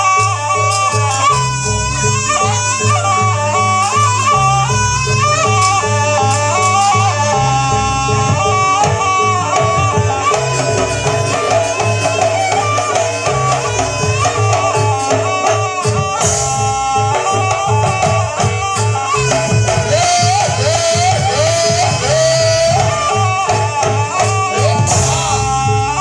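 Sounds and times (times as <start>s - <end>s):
busy drumming: 0.0s - 26.0s
shrill wavering reed horn melody: 0.0s - 26.0s.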